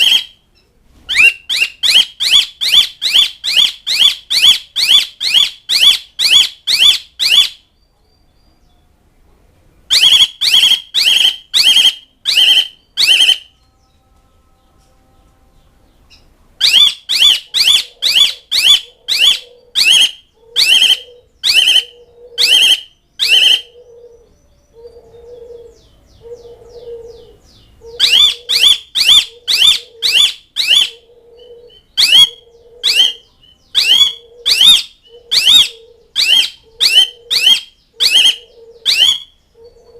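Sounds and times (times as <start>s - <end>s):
starling sharp calls: 9.9s - 13.5s, 16.6s - 23.8s, 27.8s - 31.0s, 32.0s - 39.4s.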